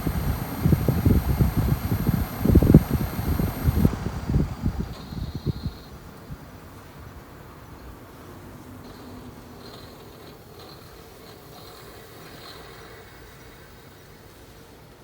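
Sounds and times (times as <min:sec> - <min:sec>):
faint high-pitched whine: 0:00.0 - 0:06.3
air conditioner hum and airflow: 0:00.0 - 0:06.6.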